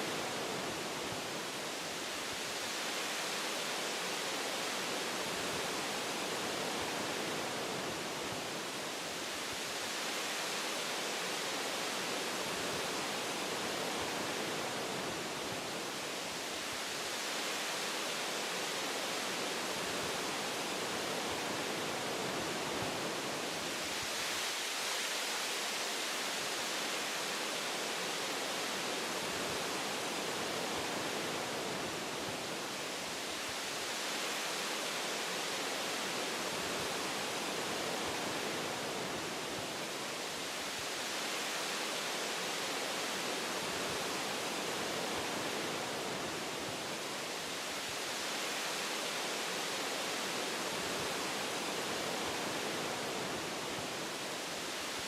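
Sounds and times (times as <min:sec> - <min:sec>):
wind rushing through trees: 0:00.0 - 0:55.0.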